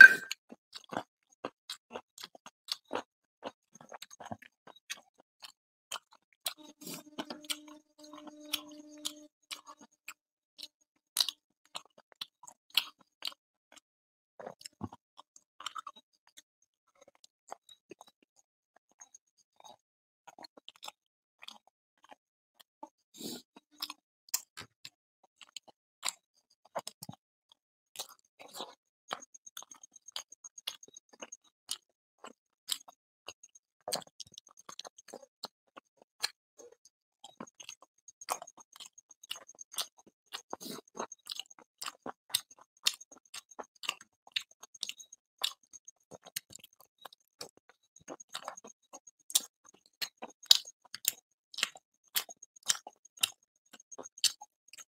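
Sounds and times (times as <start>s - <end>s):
wet mouth clicks and smacks: 0.0s - 0.4s, 37.2s - 48.7s, 49.3s - 54.9s
man chewing: 0.0s - 9.9s, 14.4s - 15.0s, 15.6s - 16.4s, 17.0s - 18.1s, 19.0s - 22.2s, 28.0s - 54.9s.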